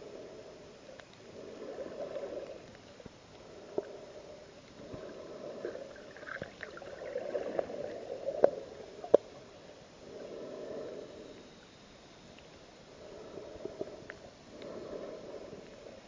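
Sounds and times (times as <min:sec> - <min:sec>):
underwater bubbles gurgling: 0:01.2 - 0:11.0.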